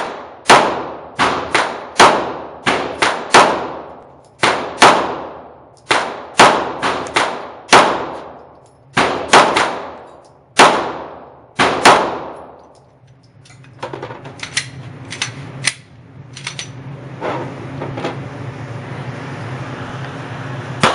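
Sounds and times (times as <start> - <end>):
pistol shots reverberating indoors: 0.0 - 12.8
low steady hum: 0.0 - 20.9.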